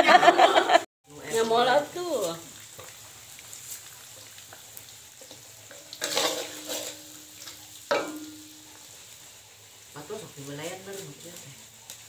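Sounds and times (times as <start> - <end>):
food sizzling in hot oil: 0.2 - 12.0
metal spatula scraping a wok: 5.2 - 9.3
spatula striking a ringing wok: 5.7 - 8.9.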